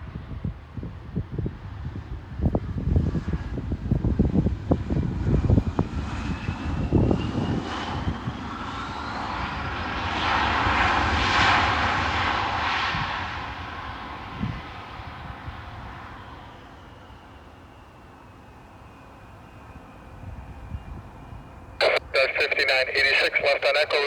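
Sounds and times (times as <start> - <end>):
wind buffeting microphone: 0.0 - 8.5
airplane engine passing: 1.5 - 24.0.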